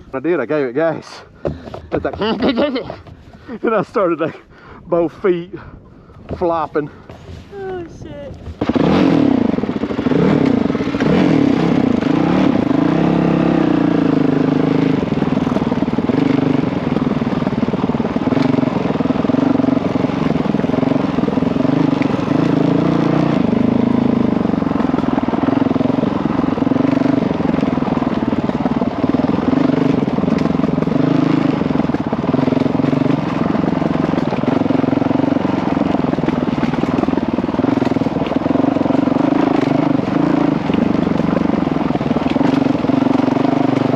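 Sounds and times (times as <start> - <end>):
dirt bike engine running: 0.0 - 4.5, 5.8 - 43.9.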